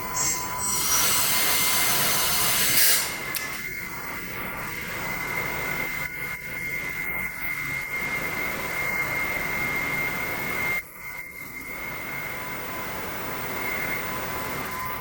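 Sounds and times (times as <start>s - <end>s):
hydraulic pump whining: 0.0s - 4.0s.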